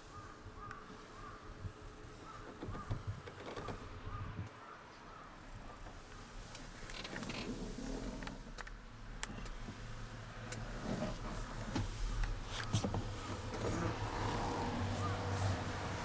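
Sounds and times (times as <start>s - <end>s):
light clicks and knocks: 2.3s - 4.0s.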